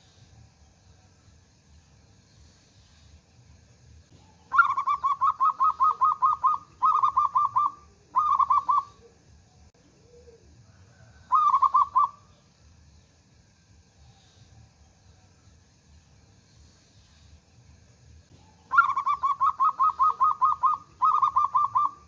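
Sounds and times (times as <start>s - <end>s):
dove cooing: 4.2s - 12.3s, 18.4s - 22.0s.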